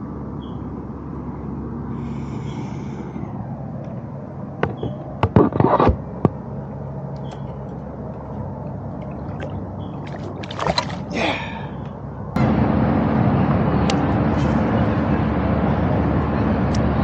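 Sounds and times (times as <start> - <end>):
steady engine-like hum: 0.0 - 17.0
water splashing and gurgling: 8.5 - 11.8.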